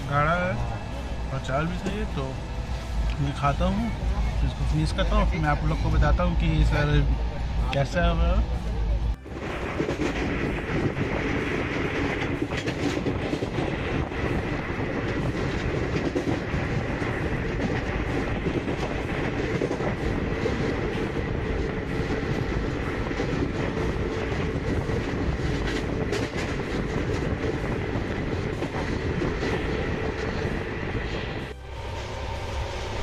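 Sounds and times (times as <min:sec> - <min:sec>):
wheels rumbling on rails: 0:00.0 - 0:33.0
rail joint clicks: 0:08.6 - 0:31.6.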